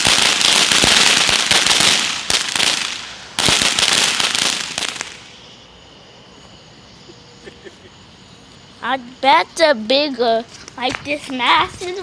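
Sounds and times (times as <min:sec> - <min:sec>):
firework crackling and popping: 0:00.0 - 0:05.4, 0:10.6 - 0:12.0.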